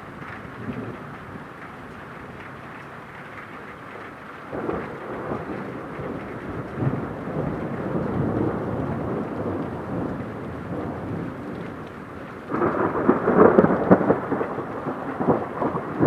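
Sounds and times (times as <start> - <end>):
rain hissing: 0.0 - 16.0
thunder rolling rumble: 4.5 - 16.0.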